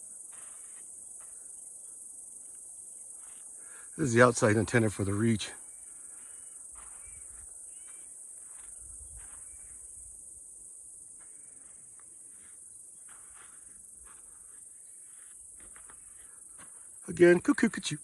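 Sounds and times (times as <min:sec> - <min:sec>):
high-pitched insect buzz: 0:00.0 - 0:01.6, 0:05.6 - 0:17.3.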